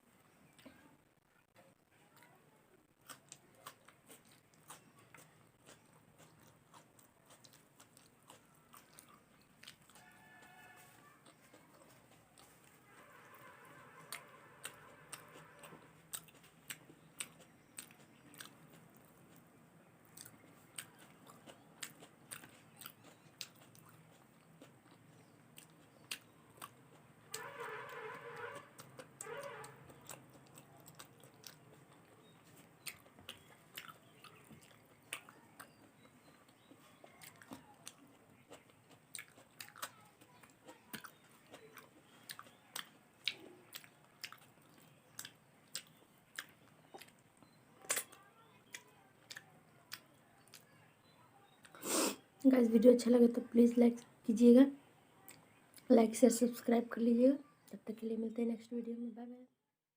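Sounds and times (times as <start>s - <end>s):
close-miked chewing: 0.0s - 58.0s
mouth clicks and smacks: 20.0s - 50.7s.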